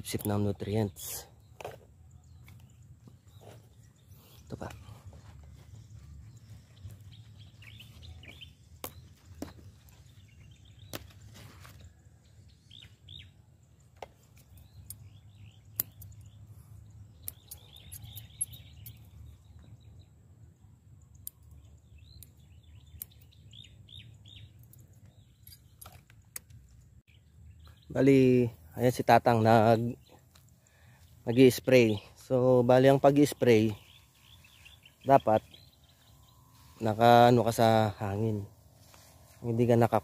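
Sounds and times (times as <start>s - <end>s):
small birds chirping: 0.0s - 40.0s
sharp clicks: 15.7s - 16.3s, 17.2s - 19.1s.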